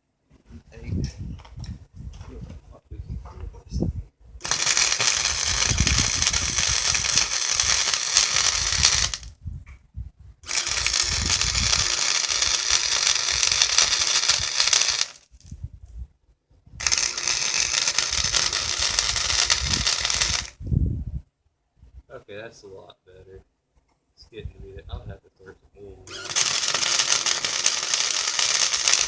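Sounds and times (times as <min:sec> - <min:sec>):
welding arc crackling: 0:04.4 - 0:09.3, 0:10.4 - 0:15.4, 0:16.8 - 0:20.6, 0:26.1 - 0:29.0.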